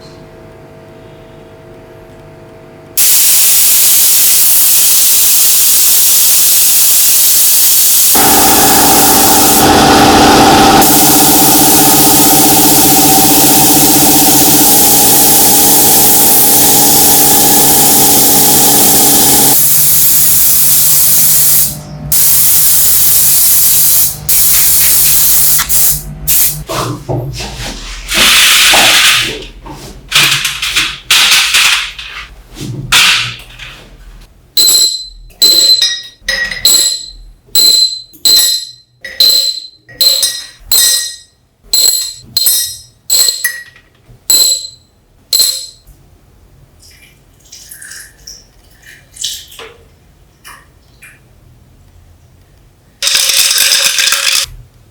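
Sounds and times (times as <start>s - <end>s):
compressed air gun hissing: 22.5s - 26.6s.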